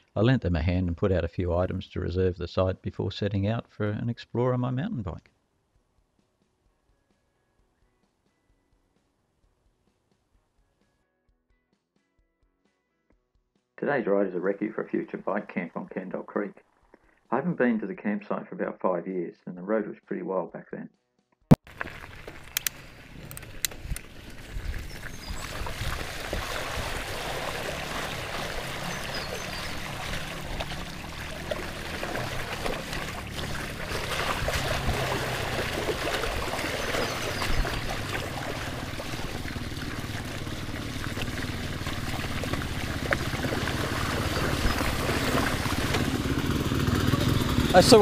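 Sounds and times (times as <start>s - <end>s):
water rushing: 21.7s - 48.0s
motorbike engines: 26.8s - 48.0s.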